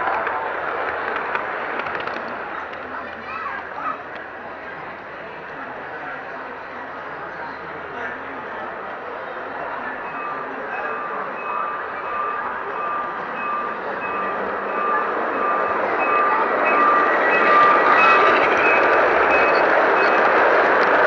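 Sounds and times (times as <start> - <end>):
electronic warning beeps: 9.6 - 20.4.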